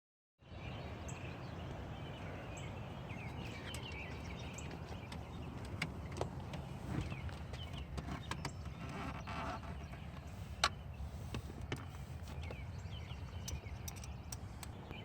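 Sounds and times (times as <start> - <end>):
bird chirps: 0.4 - 15.0
sharp clicks: 13.4 - 15.0.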